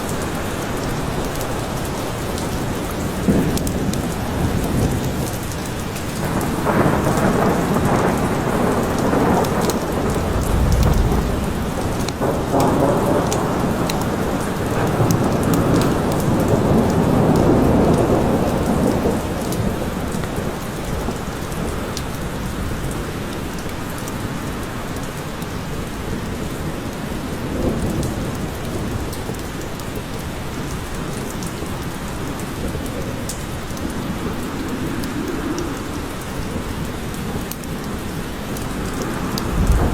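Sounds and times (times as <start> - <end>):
steady rain: 0.0 - 39.9
rolling thunder rumble: 1.6 - 21.8, 38.6 - 39.9.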